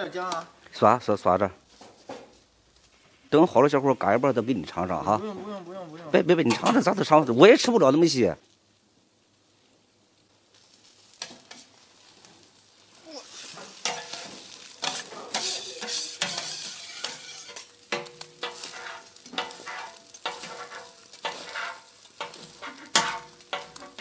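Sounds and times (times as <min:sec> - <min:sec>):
crepe sizzling: 0:01.6 - 0:07.8, 0:08.4 - 0:24.0
metal spatula scraping griddle: 0:13.2 - 0:24.0.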